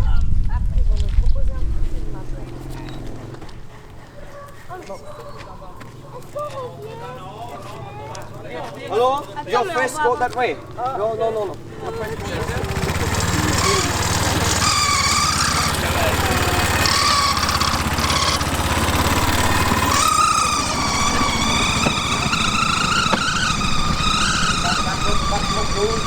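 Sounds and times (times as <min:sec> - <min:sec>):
small motor rumbling on rails: 0:09.8 - 0:26.0.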